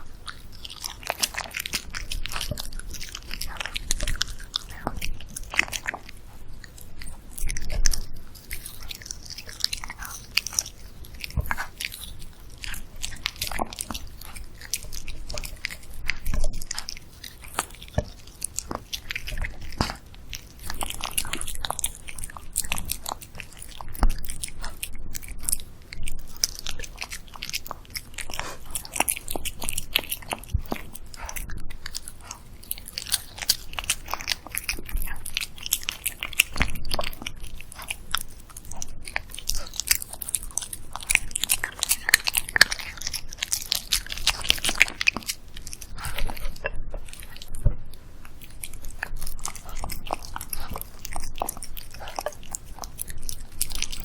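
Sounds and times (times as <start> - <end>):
dog chewing and smacking: 0.0 - 54.0.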